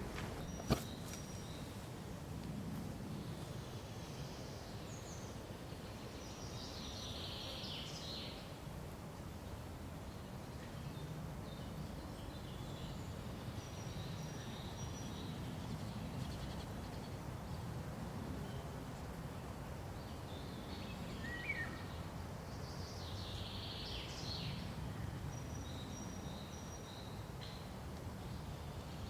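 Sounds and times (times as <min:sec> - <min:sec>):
bird calls: 0:00.0 - 0:01.7
wind rustling in trees: 0:00.0 - 0:29.0.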